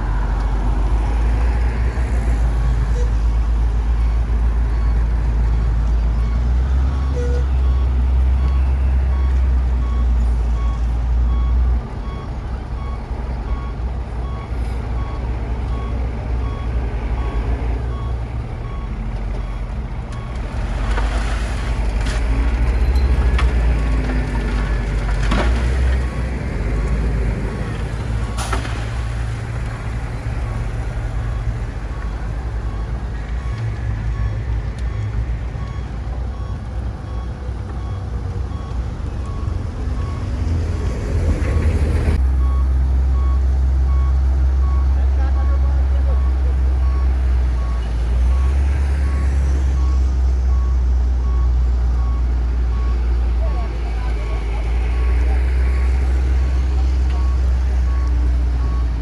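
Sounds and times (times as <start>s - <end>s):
bulldozer diesel engine rumbling: 0.0s - 59.0s
reversing alarm beeps: 31.3s - 40.4s, 42.4s - 52.2s, 55.0s - 58.9s.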